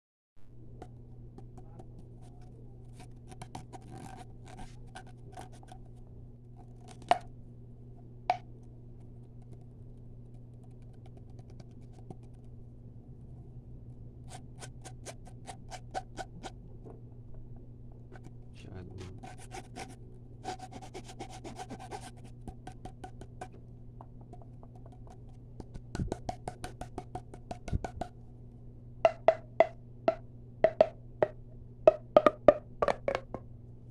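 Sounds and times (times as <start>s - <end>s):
steady low hum: 0.4s - 33.9s
tapping and scratching on hard surface: 0.8s - 5.8s, 8.3s - 12.5s, 19.0s - 28.2s, 29.1s - 33.5s.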